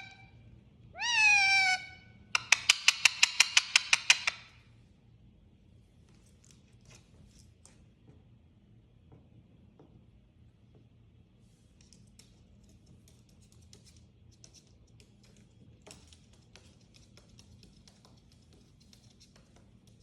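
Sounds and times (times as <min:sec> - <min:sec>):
low steady hum: 0:00.0 - 0:02.5, 0:04.4 - 0:20.0
faint light clicks and scratches: 0:11.4 - 0:20.0.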